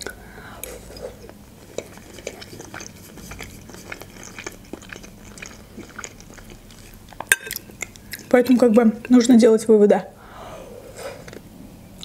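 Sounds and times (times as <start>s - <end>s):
wet chewing and mouth smacks: 1.0s - 8.9s.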